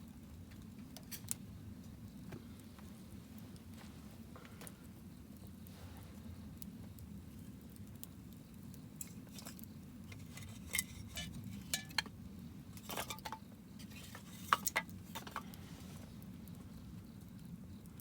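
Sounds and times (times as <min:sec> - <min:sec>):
campfire crackling: 0:00.0 - 0:18.0
fire pops and clicks: 0:06.6 - 0:18.0.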